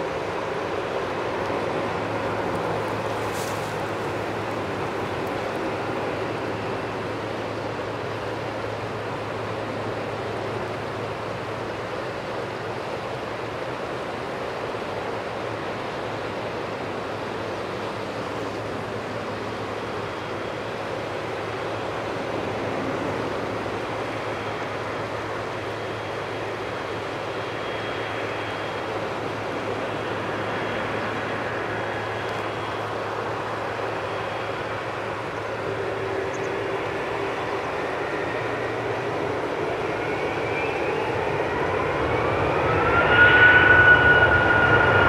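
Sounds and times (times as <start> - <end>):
faint high whine: 0.0 - 45.0
jet engines roaring: 0.0 - 45.0.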